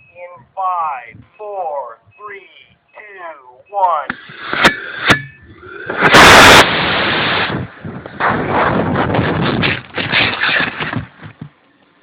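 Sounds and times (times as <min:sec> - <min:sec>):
rocket motor roaring: 0:04.1 - 0:10.0.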